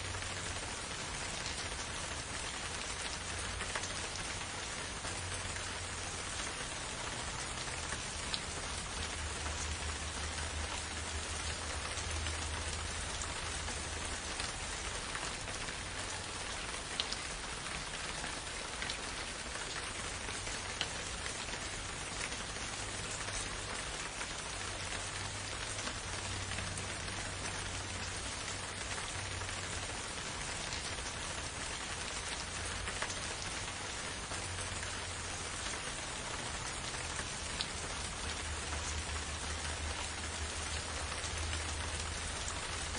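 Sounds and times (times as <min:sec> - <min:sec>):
steady rain hiss: 0:00.0 - 0:42.9.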